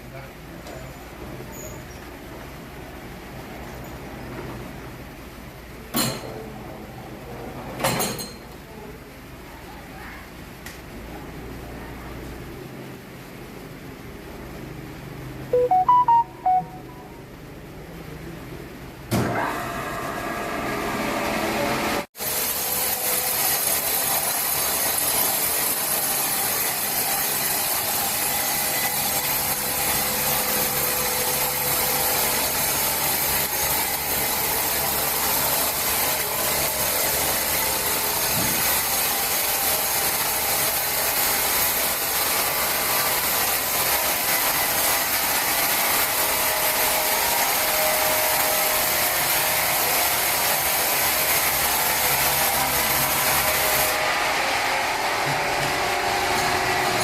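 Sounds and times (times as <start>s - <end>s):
sawmill saw cutting log: 20.8s - 57.0s.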